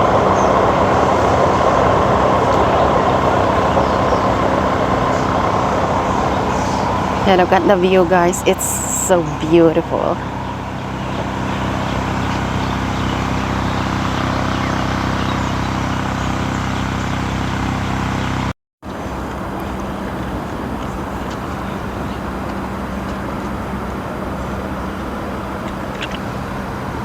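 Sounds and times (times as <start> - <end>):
low vehicle engine hum: 0.0 - 27.0
traffic noise: 0.0 - 27.0.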